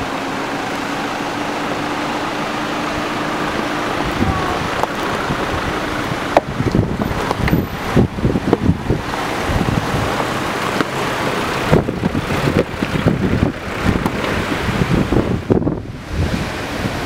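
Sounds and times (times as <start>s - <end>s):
car driving: 0.0s - 17.0s
wind buffeting microphone: 0.0s - 17.0s.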